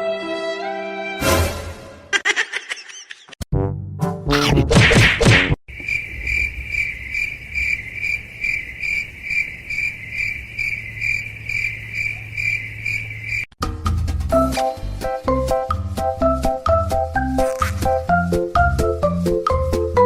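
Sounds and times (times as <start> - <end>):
cricket chirping: 5.7 - 13.5.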